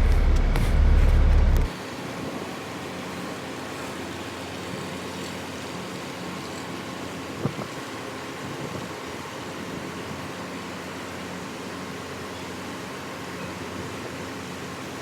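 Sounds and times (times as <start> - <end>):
loud low rumble: 0.0 - 1.7
steady mechanical hum: 0.0 - 15.0.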